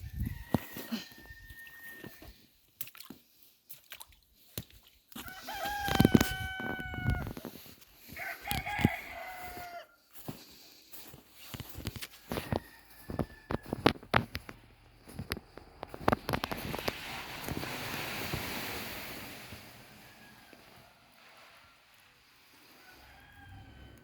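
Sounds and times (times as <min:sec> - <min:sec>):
rooster crowing: 0:00.2 - 0:02.2, 0:05.2 - 0:07.3, 0:08.1 - 0:10.0, 0:12.2 - 0:13.9, 0:19.9 - 0:21.2, 0:22.6 - 0:24.0.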